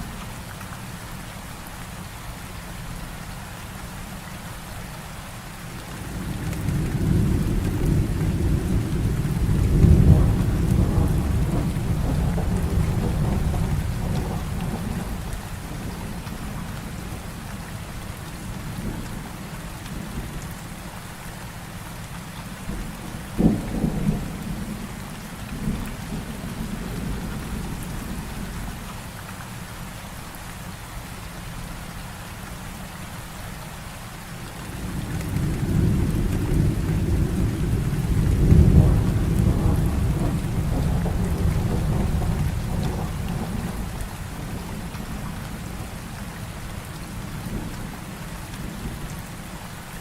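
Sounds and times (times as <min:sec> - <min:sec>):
heavy rain hissing: 0:00.0 - 0:50.0
thunder rumbling: 0:06.1 - 0:17.2, 0:22.7 - 0:28.8, 0:34.7 - 0:49.0
sharp thunderclap: 0:07.0 - 0:15.2, 0:35.2 - 0:45.0.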